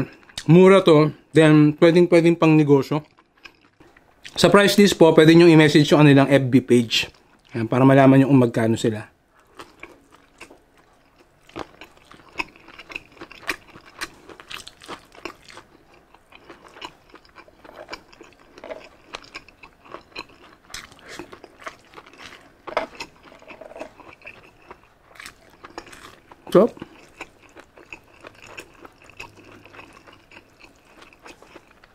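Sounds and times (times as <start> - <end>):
person chewing with mouth clicks: 9.4 - 31.9.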